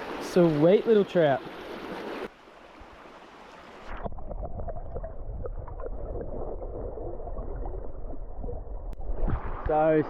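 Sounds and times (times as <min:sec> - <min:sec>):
underwater river gurgling and bubbling: 0:03.7 - 0:09.6.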